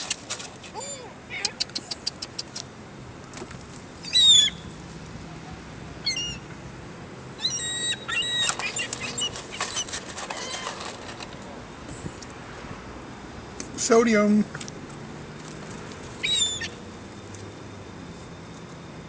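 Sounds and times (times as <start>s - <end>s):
gulls calling: 4.0s - 4.7s, 6.0s - 6.5s, 7.4s - 10.9s, 16.2s - 17.0s.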